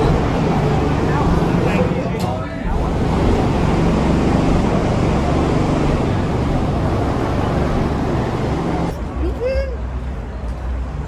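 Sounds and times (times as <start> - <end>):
loud rushing noise: 0.0 - 9.0
car engine running: 2.7 - 8.9.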